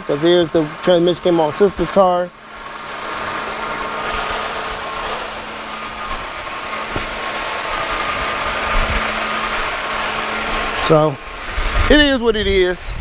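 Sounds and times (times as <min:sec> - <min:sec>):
car engine idling: 0:00.0 - 0:12.9
faint engine knock: 0:02.6 - 0:10.8.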